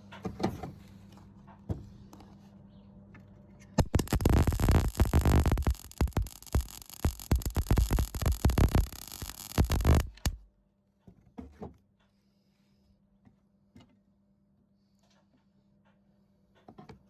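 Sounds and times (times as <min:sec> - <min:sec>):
faint steady hum: 0:03.8 - 0:10.5
welder arc crackling: 0:03.8 - 0:10.5.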